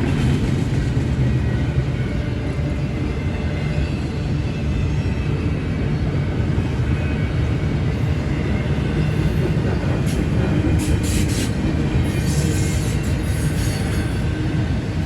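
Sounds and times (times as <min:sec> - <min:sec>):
freight train rumbling by: 0:00.0 - 0:15.0
high metallic wheel squeals: 0:10.8 - 0:14.4.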